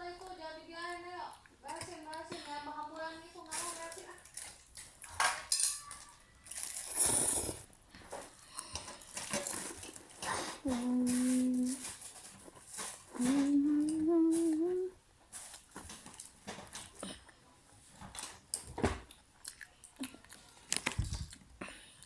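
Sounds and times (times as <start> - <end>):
utensils and dishes clicking: 3.4 - 7.2
person humming a held note: 10.7 - 11.8, 13.2 - 15.0.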